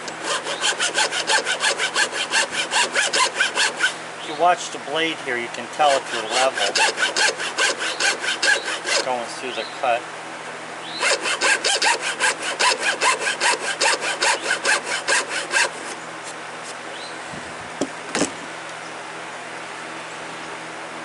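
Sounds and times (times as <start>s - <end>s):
hacksaw cutting wood: 0.0s - 4.0s, 5.8s - 9.3s, 11.0s - 16.0s.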